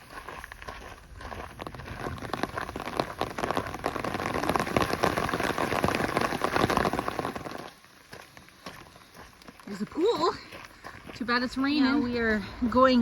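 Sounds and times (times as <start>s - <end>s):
raindrops hitting a surface: 1.6s - 11.5s
heavy rain falling: 2.0s - 7.9s.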